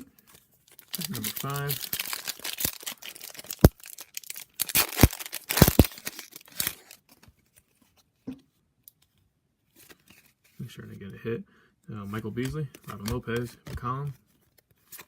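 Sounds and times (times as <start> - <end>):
wrapper crinkling and tearing: 0.3 - 7.2
wrapper snapping: 0.7 - 7.0.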